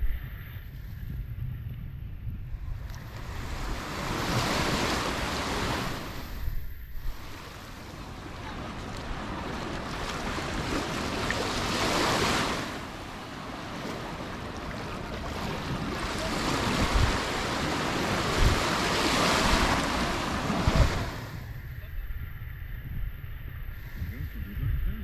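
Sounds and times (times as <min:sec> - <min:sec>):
wind buffeting microphone: 0:00.0 - 0:25.0
sea waves breaking on shore: 0:02.6 - 0:21.8.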